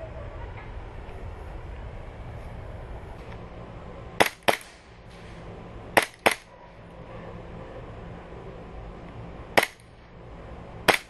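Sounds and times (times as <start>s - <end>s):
airsoft pistol shots: 4.2s - 4.9s, 6.0s - 6.5s, 9.6s - 9.8s.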